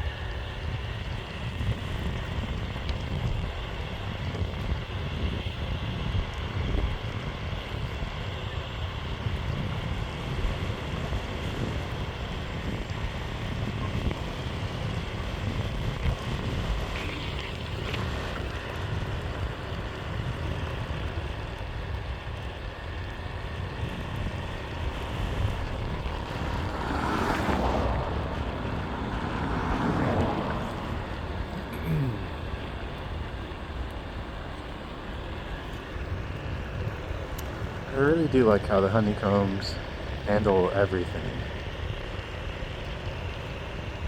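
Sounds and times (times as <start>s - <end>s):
skateboard wheels rolling on pavement: 0.0s - 44.0s
wind buffeting microphone: 0.0s - 44.0s.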